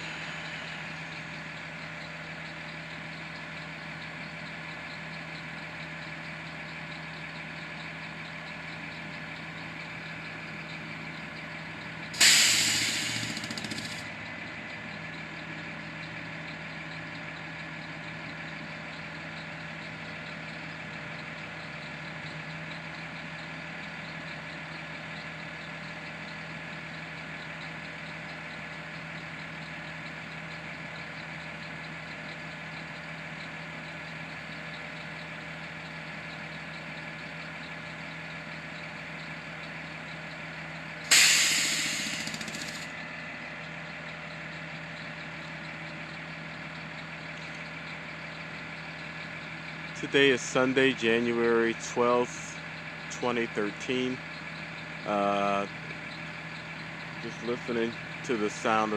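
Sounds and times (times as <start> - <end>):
truck engine idling: 0.0 - 58.9
relief valve hiss: 12.2 - 14.0, 41.1 - 42.8.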